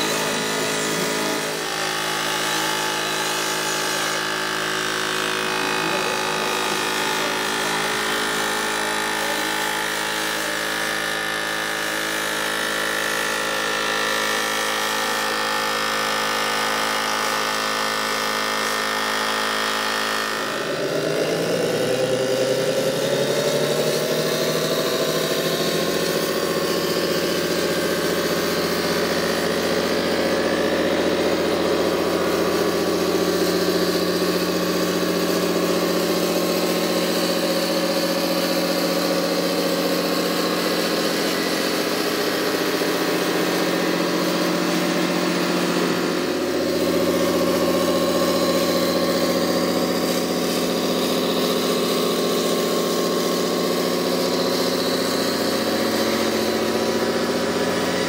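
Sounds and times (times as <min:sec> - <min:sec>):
machine running with held tones: 0:00.0 - 0:58.0.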